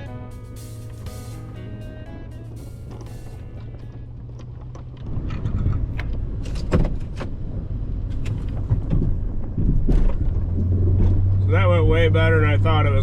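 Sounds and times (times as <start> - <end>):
plow scraping: 0.0 - 13.0
snow plow truck running: 0.0 - 13.0
knocks and clatters: 2.8 - 7.4, 8.0 - 11.4.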